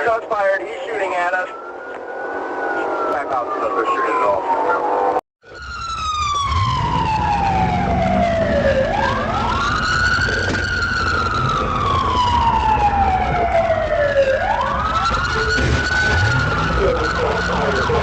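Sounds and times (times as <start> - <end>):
car engine and road noise: 0.0 - 18.0
police siren wailing: 0.0 - 18.0.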